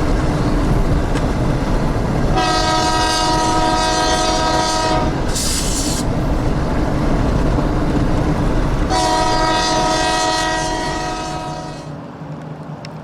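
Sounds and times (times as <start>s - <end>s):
locomotive engine rumbling: 0.0s - 12.0s
wind buffeting microphone: 0.0s - 12.0s
locomotive air horn: 2.3s - 6.0s, 8.9s - 12.0s
air hiss: 5.1s - 7.1s.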